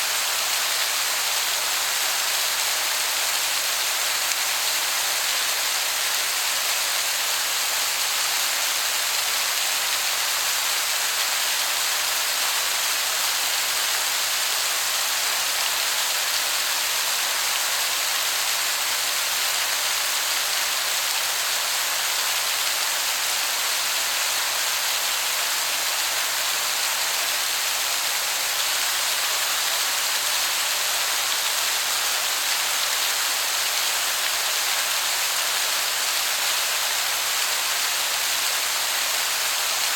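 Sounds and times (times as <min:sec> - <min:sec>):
waterfall splashing: 0:00.0 - 0:39.9.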